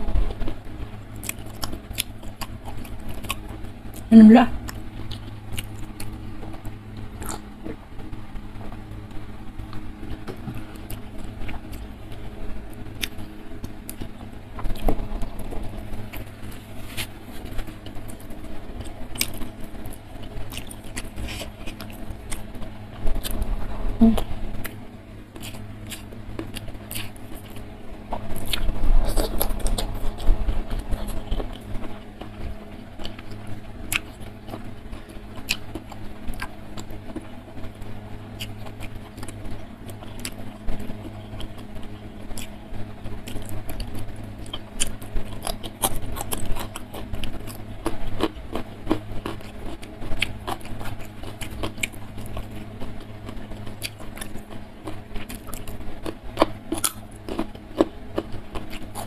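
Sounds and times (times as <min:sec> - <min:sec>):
steady low hum: 0:00.0 - 0:59.0
chewing with wet mouth clicks: 0:01.2 - 0:06.2, 0:17.8 - 0:22.5, 0:33.0 - 0:37.3, 0:42.3 - 0:42.6, 0:43.2 - 0:59.0
small crunches: 0:12.8 - 0:22.5.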